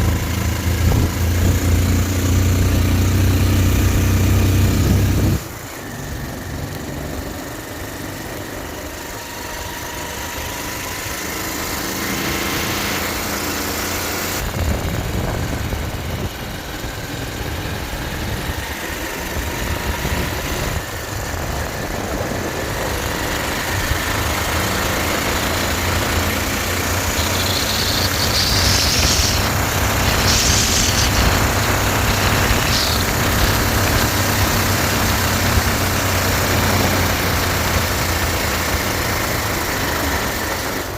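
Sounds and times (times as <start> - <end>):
motorcycle engine running: 0.0 - 40.9
wind rumble on microphone: 0.1 - 2.0, 14.4 - 24.4, 27.8 - 37.0
high hissing tone: 26.3 - 34.5.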